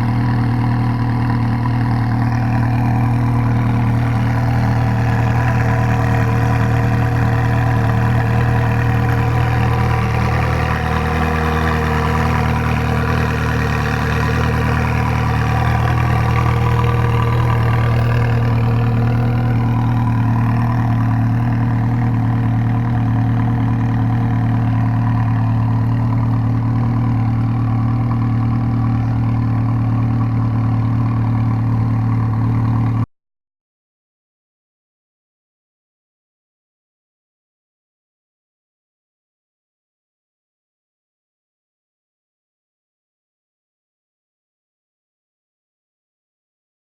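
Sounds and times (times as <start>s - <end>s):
car engine idling: 0.0s - 33.1s.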